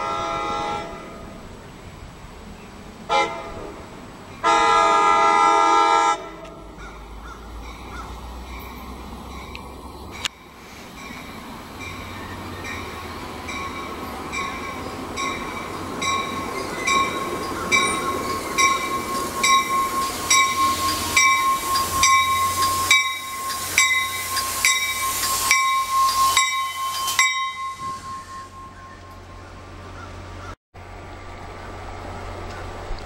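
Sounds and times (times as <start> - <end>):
rumble of passing train cars: 0.0 - 33.0
train bell ringing: 7.6 - 29.9
high squeal of wheels or brakes: 16.3 - 29.6.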